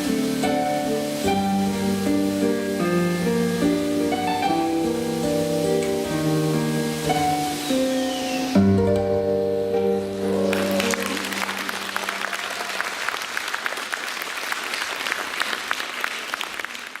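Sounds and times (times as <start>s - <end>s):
audience applause: 10.2s - 17.0s.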